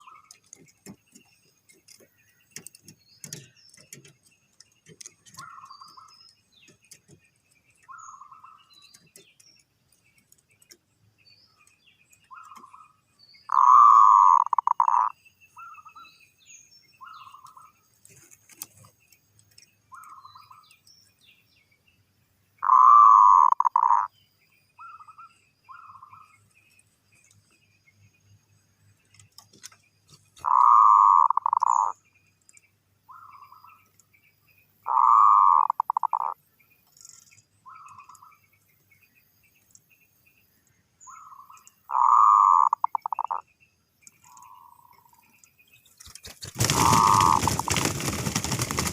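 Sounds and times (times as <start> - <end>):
dove cooing: 13.5 - 15.1, 22.6 - 24.1, 30.4 - 31.9, 34.9 - 36.4, 41.9 - 43.4, 46.6 - 48.9.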